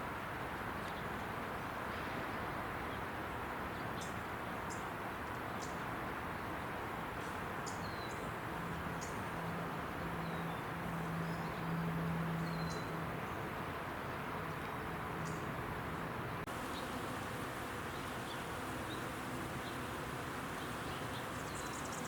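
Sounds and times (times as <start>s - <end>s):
freeway traffic roar: 8.3s - 22.0s
low pulsing droning hum: 16.5s - 22.0s.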